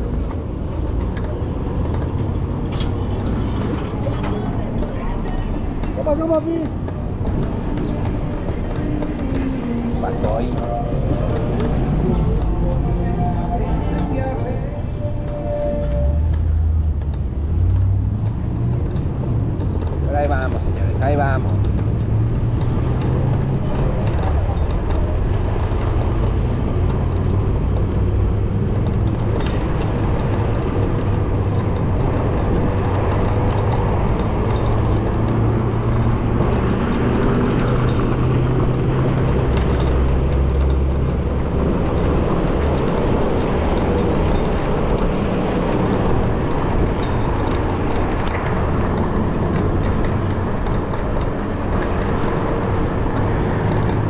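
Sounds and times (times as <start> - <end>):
heavy low rumble: 0.0 - 29.4
street traffic: 0.0 - 54.0
electric bicycle riding noise: 18.3 - 54.0.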